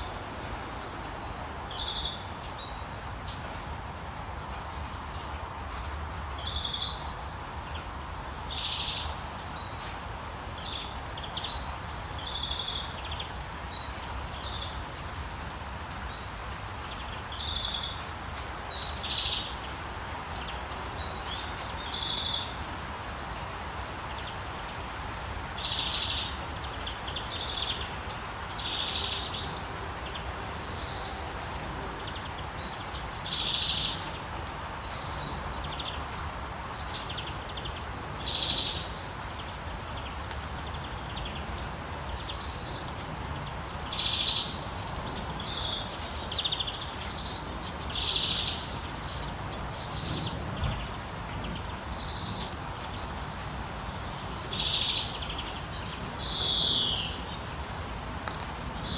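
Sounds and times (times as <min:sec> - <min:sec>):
rain falling: 0:00.0 - 0:58.9
songbirds chirping: 0:00.0 - 0:58.9.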